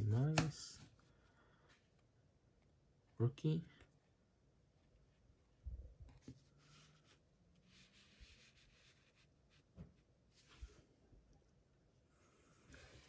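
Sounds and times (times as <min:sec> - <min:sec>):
cards knocking softly: 0:00.1 - 0:01.0.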